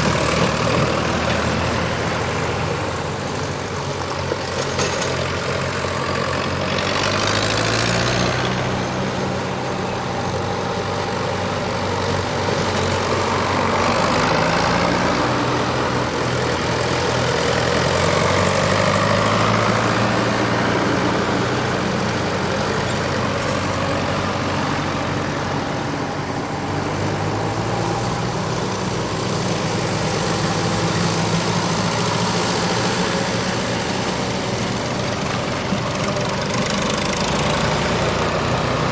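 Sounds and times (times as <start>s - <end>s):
tractors driving past: 0.0s - 38.9s.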